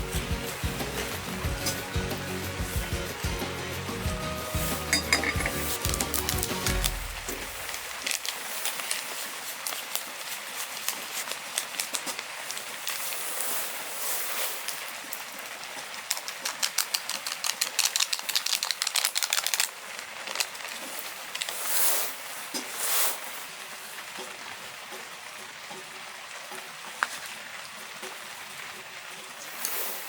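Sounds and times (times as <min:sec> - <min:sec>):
heavy rain hissing: 0:00.0 - 0:09.6, 0:20.8 - 0:24.0, 0:29.4 - 0:30.0.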